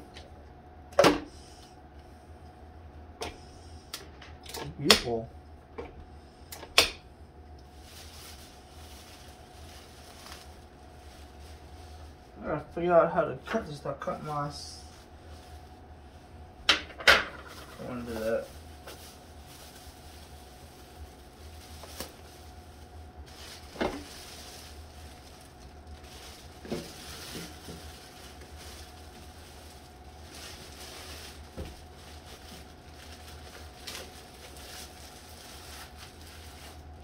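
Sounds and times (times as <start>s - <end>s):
packaging knocks and rustles: 23.3s - 36.8s.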